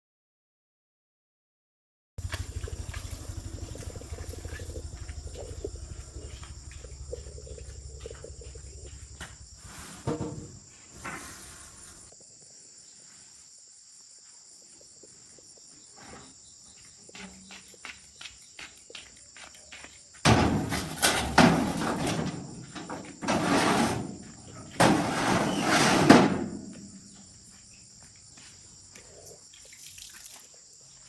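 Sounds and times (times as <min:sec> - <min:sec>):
farm vehicle engine chugging: 0:02.2 - 0:09.6
insects chirping: 0:02.2 - 0:31.0
loud knocks: 0:20.3 - 0:26.8.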